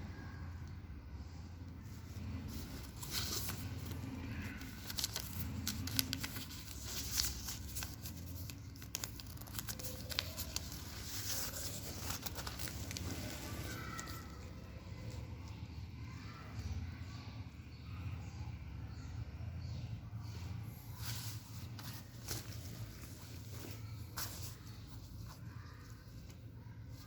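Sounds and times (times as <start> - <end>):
material crinkling and rustling: 1.8 - 15.2, 20.9 - 27.0.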